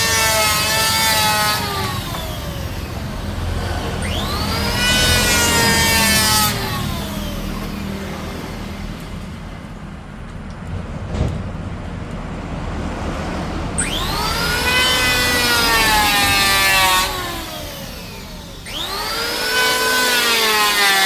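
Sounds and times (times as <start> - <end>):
power tool motor: 0.0 - 9.4, 13.8 - 21.0
saw cutting wood: 0.0 - 9.6, 13.7 - 21.0.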